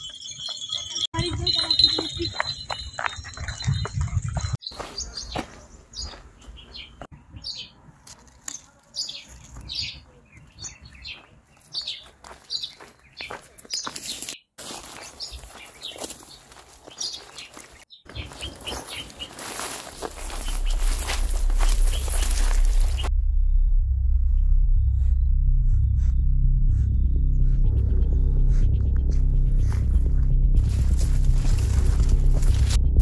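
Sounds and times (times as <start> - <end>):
birds chirping: 0.0 - 23.1.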